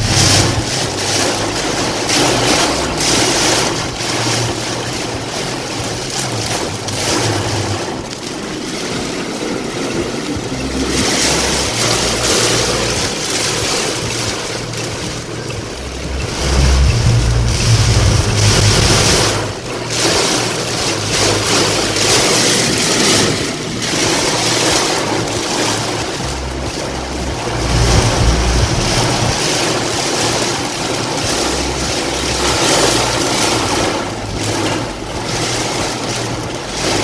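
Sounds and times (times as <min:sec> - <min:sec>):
gusting wind: 0:00.0 - 0:19.9, 0:22.8 - 0:31.0
heavy rain: 0:00.0 - 0:37.0.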